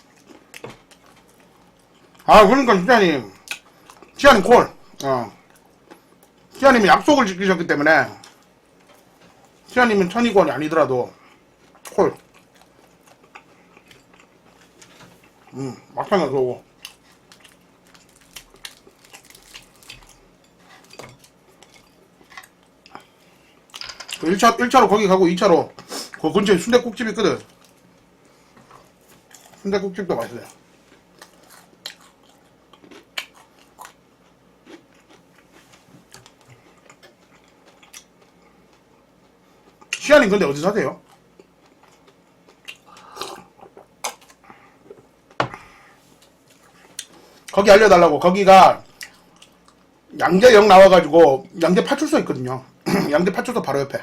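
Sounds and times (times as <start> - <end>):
biting and chewing: 16.8 - 22.7, 30.4 - 38.9.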